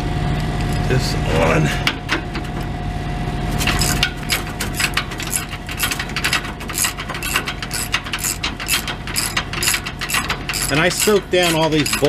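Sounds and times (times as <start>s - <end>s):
ratchet wrench clicking: 3.8s - 12.0s.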